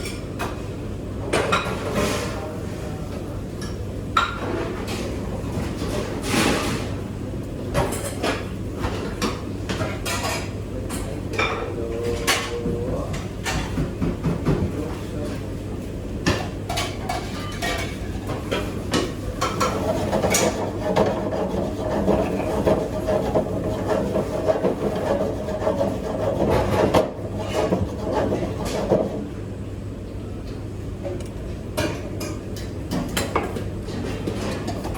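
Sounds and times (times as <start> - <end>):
dishes and pots clattering: 16.2 - 29.2.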